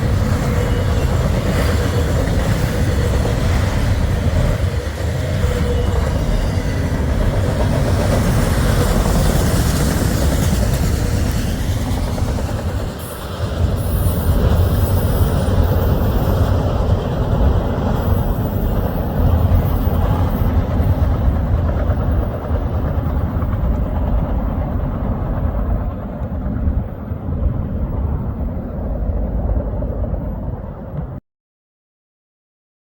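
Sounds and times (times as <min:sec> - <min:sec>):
train hiss: 0:00.0 - 0:17.3
freight train rumbling past: 0:00.0 - 0:31.2.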